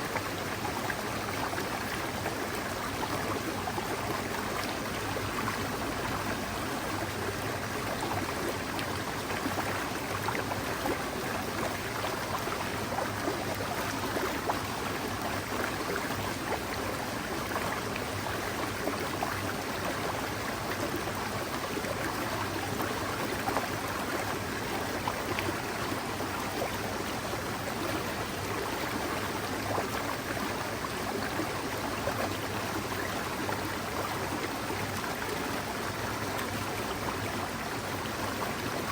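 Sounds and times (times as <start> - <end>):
mountain stream babbling: 0.0 - 38.9.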